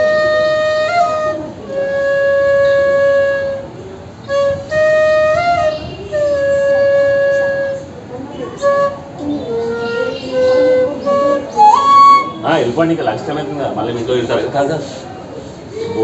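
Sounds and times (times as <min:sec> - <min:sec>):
flute playing slow phrase: 0:00.0 - 0:12.6.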